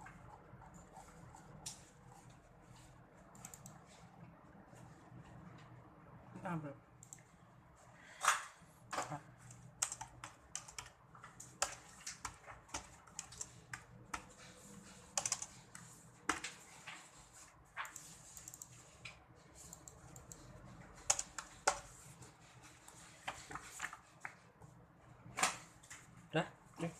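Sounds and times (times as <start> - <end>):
computer keyboard typing: 3.3 - 3.9, 9.4 - 22.0.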